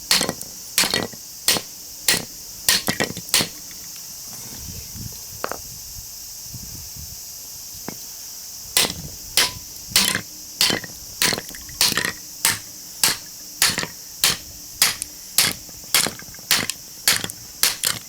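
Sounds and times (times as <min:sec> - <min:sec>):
insect chirring: 0:00.0 - 0:04.2, 0:07.6 - 0:18.0
hammer striking chisel on metal: 0:00.1 - 0:03.7, 0:08.8 - 0:18.0.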